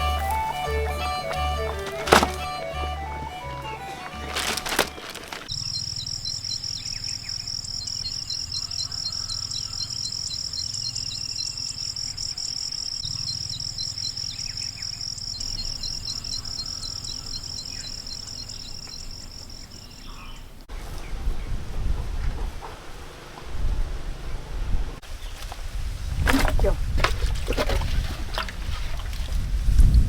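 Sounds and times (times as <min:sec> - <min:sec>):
insects droning and chirping: 0:04.2 - 0:20.7.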